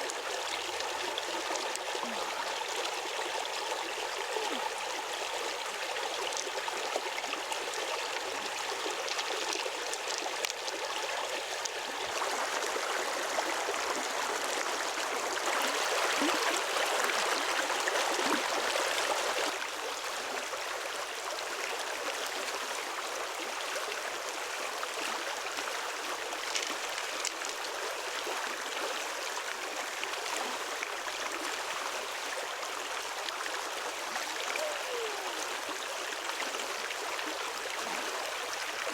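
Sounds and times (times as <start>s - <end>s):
flowing water: 0.0s - 38.9s.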